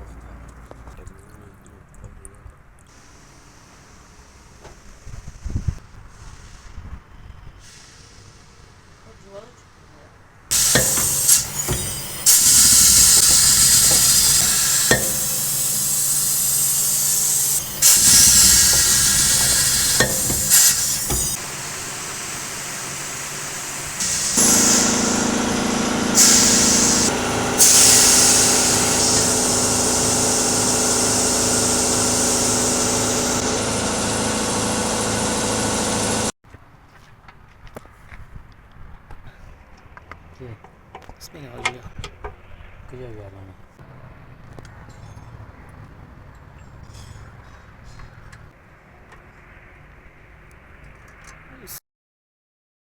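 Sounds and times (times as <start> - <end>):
loud hissing jet: 10.5 - 36.3
machine humming: 10.5 - 36.3.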